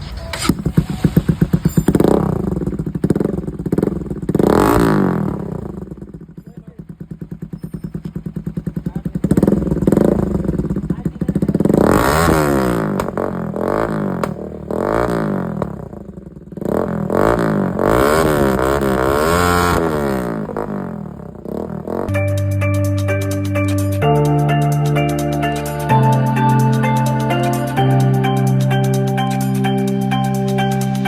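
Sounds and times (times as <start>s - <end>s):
motorcycle engine idling: 0.0s - 30.3s
motorcycle engine revving: 0.0s - 30.7s.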